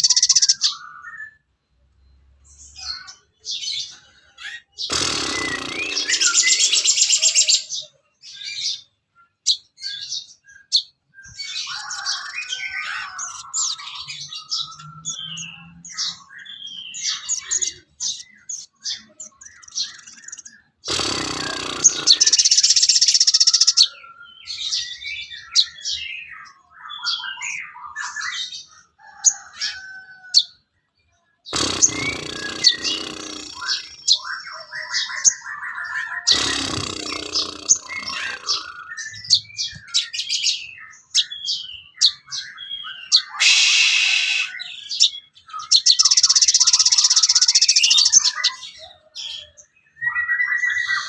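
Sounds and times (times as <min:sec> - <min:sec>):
bird singing chirps and trills: 0:00.0 - 0:51.0
loud harsh bursts: 0:20.9 - 0:22.6, 0:36.3 - 0:38.7.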